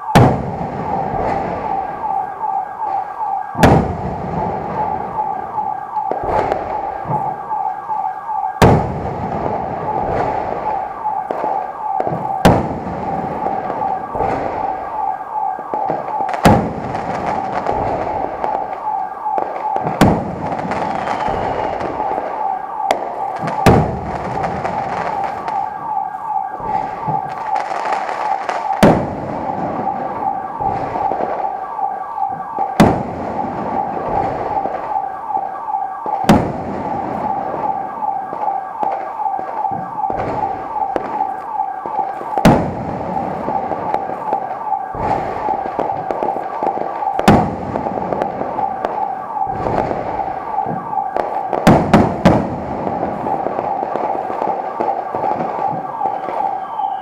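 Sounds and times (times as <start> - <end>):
fireworks bangs: 0.0 - 57.0
small firework pops: 15.7 - 22.3, 53.1 - 57.0.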